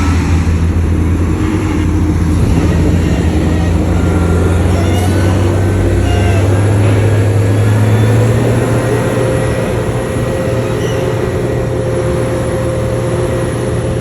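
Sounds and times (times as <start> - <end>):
heavy diesel engine droning: 0.0 - 14.0
faint high squeals: 1.4 - 11.9.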